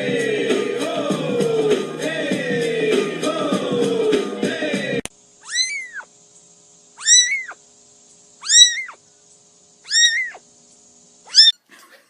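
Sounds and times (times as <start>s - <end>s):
cat meowing: 5.4s - 6.1s, 7.0s - 7.6s, 8.4s - 9.0s, 9.9s - 10.4s, 11.3s - 11.6s.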